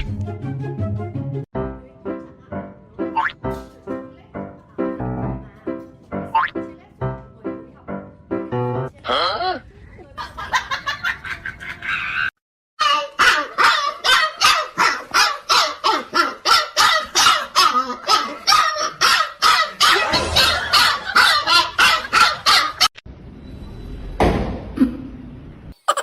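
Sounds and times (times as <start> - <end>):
dog barking: 12.9 - 22.9.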